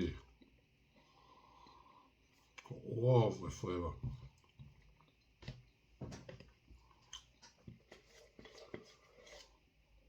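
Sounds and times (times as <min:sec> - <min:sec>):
person chewing food: 0:04.3 - 0:09.8.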